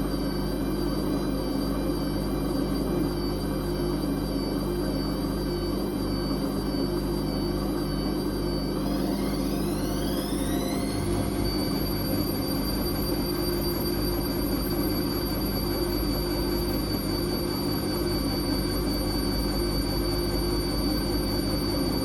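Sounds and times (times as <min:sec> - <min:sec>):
washing machine motor whine: 0:00.0 - 0:22.0
low rumble: 0:10.8 - 0:14.8.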